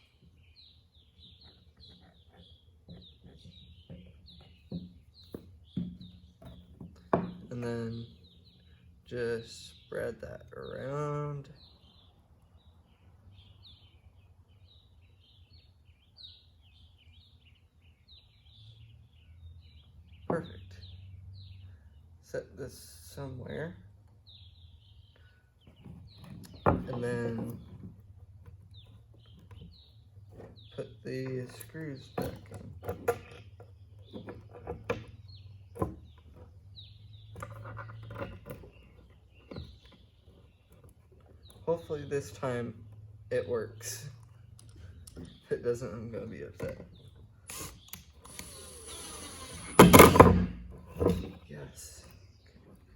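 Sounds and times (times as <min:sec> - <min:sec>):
faint birdsong chirps: 0:00.0 - 0:52.9
screws and wooden pieces handled: 0:25.6 - 0:43.2, 0:43.8 - 0:51.5.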